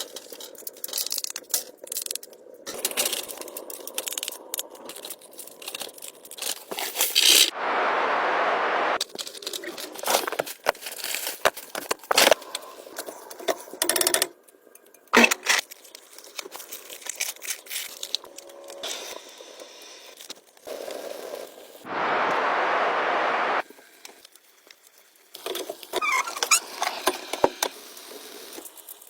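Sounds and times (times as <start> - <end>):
clicks and crinkling handling noises: 0.0 - 7.5, 9.0 - 19.3, 24.0 - 29.0
steady rushing noise: 7.5 - 9.0, 21.8 - 23.6.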